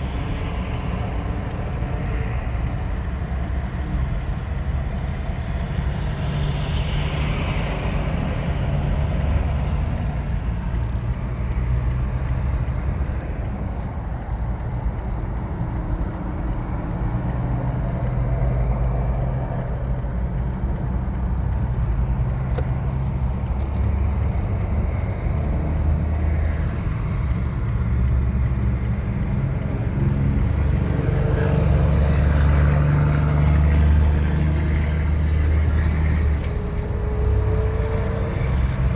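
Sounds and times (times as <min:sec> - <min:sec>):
vehicle engines and road noise: 0:00.0 - 0:38.9.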